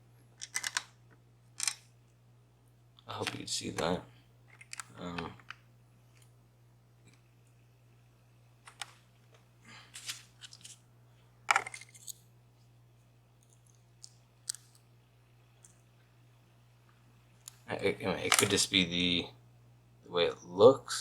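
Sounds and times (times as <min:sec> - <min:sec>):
lock parts clicking and tapping: 0:00.4 - 0:00.9.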